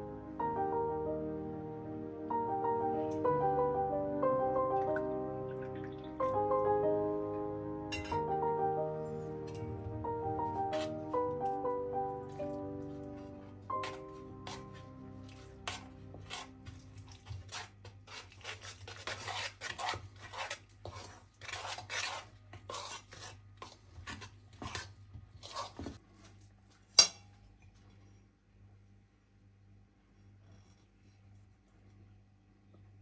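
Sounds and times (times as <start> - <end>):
background music: 0.0 - 17.5
utensil scraping cookware: 13.7 - 26.0.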